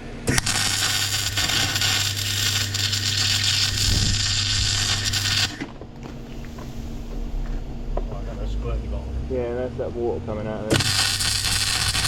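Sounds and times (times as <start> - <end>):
welding arc crackling: 0.0 - 5.8, 10.7 - 12.0
low electrical hum: 0.0 - 12.0.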